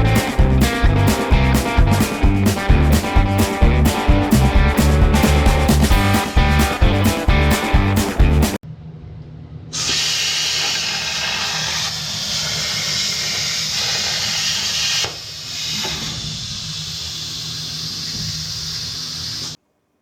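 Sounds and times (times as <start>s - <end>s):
low hum: 0.0s - 9.8s
plasma torch hissing: 9.8s - 19.6s.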